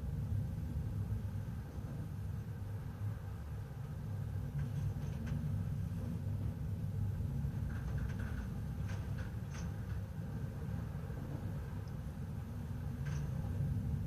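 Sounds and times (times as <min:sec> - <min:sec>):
ship engines rumbling: 0:00.0 - 0:14.0
faint ticks and creaks: 0:04.2 - 0:14.0.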